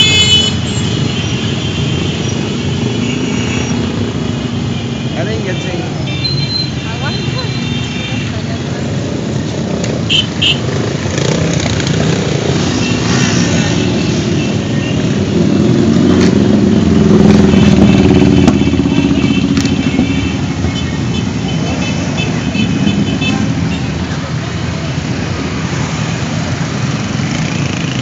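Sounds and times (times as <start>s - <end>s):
motorcycles riding past: 8.2s - 28.0s.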